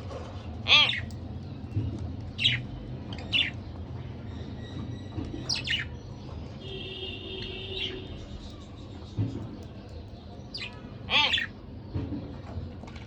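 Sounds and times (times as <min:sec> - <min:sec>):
budgerigars chirping: 0:00.7 - 0:01.1, 0:10.5 - 0:11.5.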